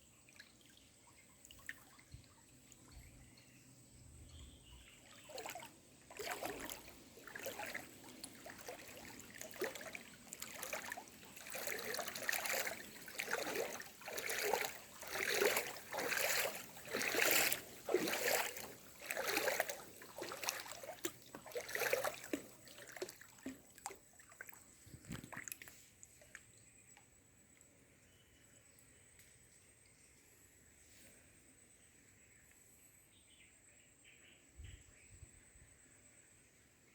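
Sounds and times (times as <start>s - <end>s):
water splashing: 5.0s - 26.3s.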